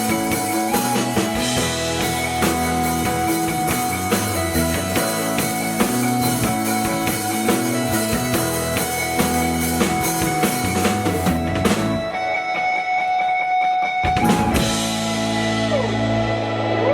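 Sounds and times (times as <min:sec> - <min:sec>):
drum kit hits: 0:00.0 - 0:12.3, 0:14.0 - 0:16.2
guitars playing chords: 0:00.0 - 0:16.9.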